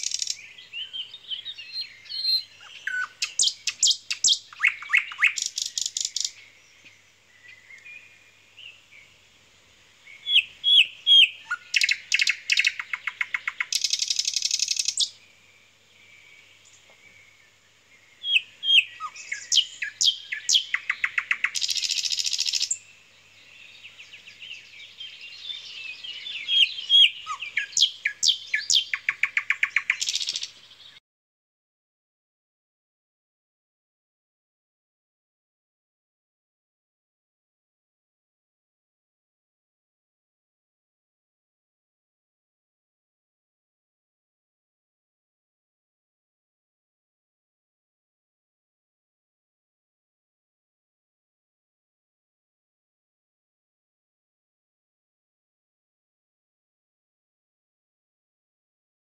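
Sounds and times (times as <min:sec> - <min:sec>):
songbird trilling and chirping: 0:00.0 - 0:08.8, 0:10.0 - 0:15.2, 0:18.1 - 0:31.0.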